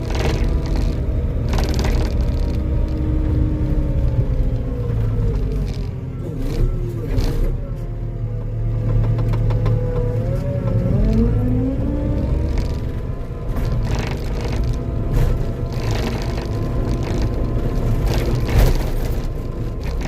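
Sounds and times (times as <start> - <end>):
sharp knocks and scrapes: 0.0 - 3.0, 12.3 - 20.0
diesel engine working under load: 0.0 - 20.0.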